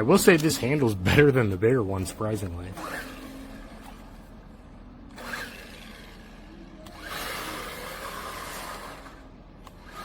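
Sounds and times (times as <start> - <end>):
electric motor whining: 2.7 - 4.2, 5.1 - 10.0.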